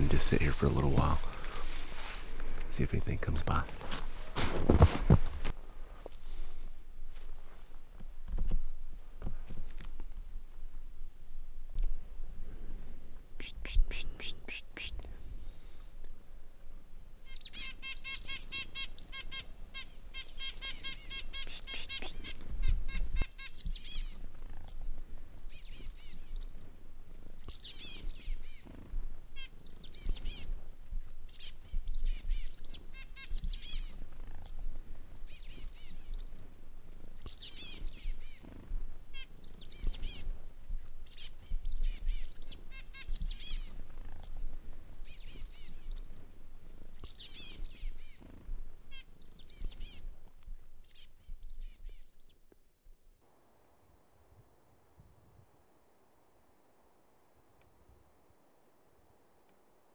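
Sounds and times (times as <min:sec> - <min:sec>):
small birds chirping: 0:00.0 - 0:03.7, 0:11.8 - 0:53.2
rapid pulsed bird trill: 0:11.9 - 0:53.2.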